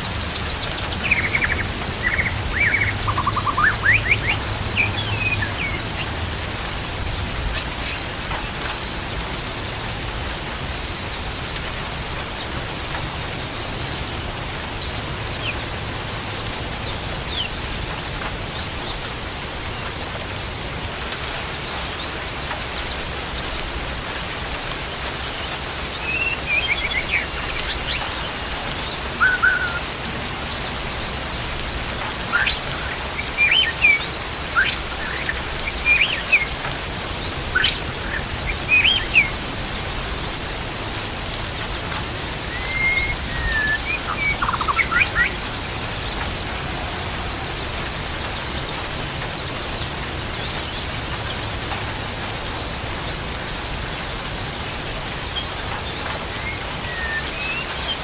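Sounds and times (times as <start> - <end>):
wild birds chirping and whistling: 0.0 - 11.3, 21.3 - 51.4, 53.0 - 58.0
steady hiss: 0.0 - 58.0.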